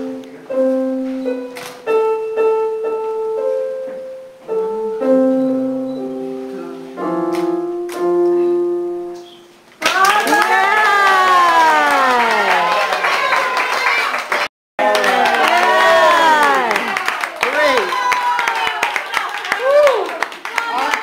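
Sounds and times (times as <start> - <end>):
slow piano: 0.0 - 9.8
loud voices: 14.8 - 21.0.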